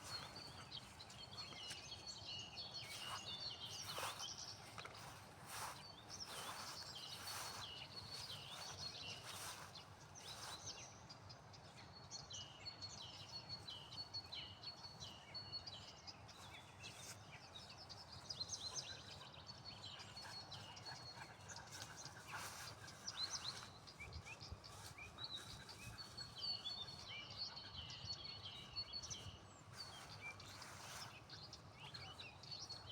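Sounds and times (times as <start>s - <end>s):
songbirds chirping and singing: 0.0s - 10.8s, 18.6s - 32.9s.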